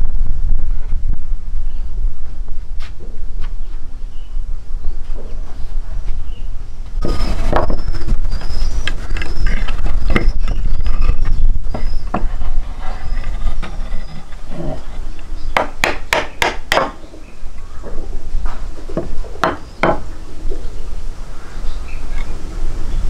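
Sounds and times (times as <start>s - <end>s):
steady low rumble: 0.0s - 15.6s
sharp knocks: 15.6s - 17.0s, 19.0s - 20.0s.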